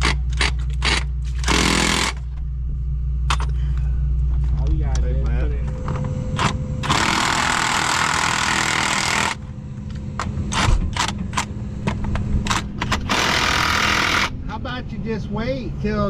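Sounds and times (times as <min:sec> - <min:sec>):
impact wrench bursts: 0:00.0 - 0:02.3, 0:06.4 - 0:09.4, 0:12.5 - 0:14.4
machine engine running: 0:00.0 - 0:16.0.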